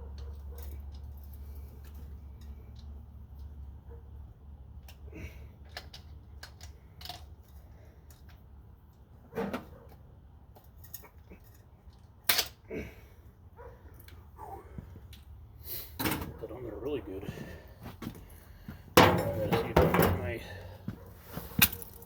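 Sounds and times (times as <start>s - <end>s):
tools and metal parts clicking: 0.1s - 3.5s, 5.6s - 8.4s, 10.6s - 12.6s.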